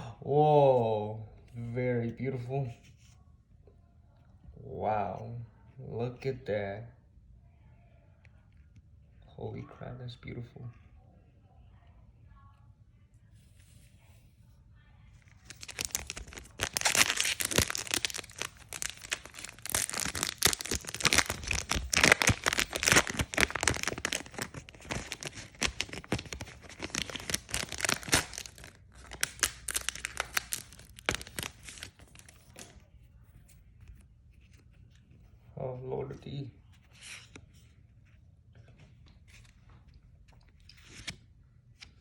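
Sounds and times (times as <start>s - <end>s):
plastic wrapper crinkling and tearing: 15.2s - 32.9s.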